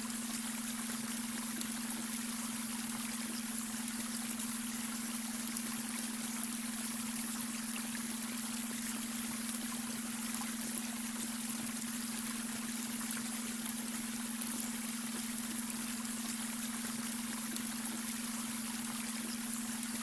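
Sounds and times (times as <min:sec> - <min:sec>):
brook water flowing and trickling: 0:00.0 - 0:20.0
low steady hum tone: 0:00.0 - 0:20.0.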